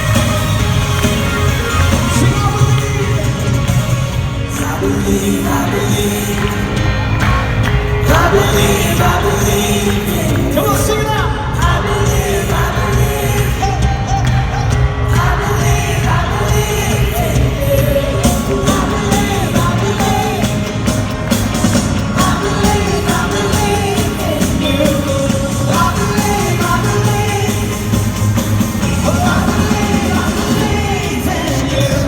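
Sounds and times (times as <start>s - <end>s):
crowd shouting: 0.0s - 9.8s
congregation singing: 0.0s - 32.0s
live band playing: 0.0s - 32.0s.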